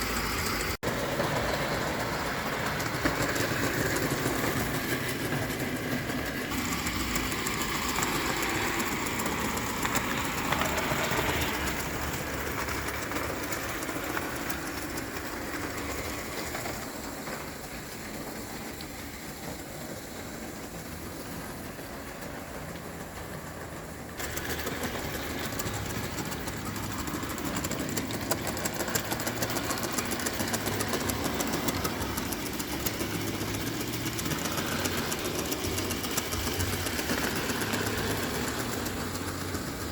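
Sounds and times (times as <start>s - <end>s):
toy steam locomotive clattering: 0.0s - 39.9s.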